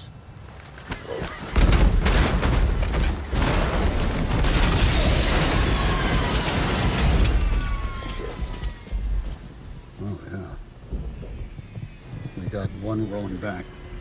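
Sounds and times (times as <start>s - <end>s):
thuds and bangs: 0.9s - 9.8s
faint falling whines: 3.1s - 14.0s.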